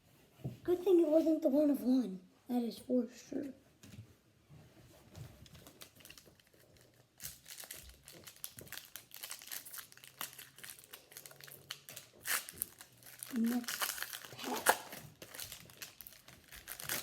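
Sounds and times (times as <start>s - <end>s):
foil wrapper crinkling: 5.5s - 17.0s.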